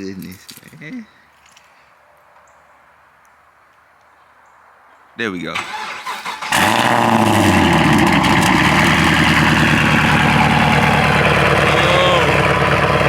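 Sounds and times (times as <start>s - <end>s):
car engine idling high: 5.6s - 13.0s.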